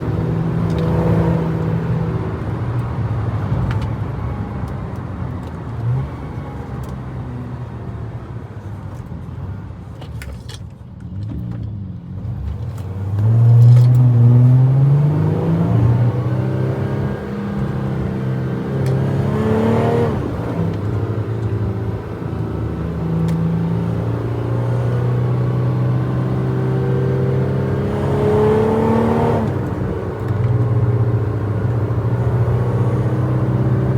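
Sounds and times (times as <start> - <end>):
vehicle engine revving under load: 12.3 - 33.9.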